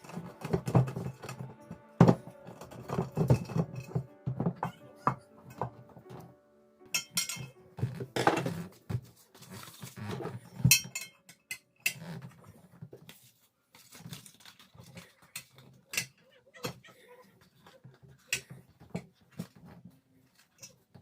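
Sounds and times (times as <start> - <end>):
knocks and metallic clinks: 6.9 - 8.6, 10.6 - 12.0.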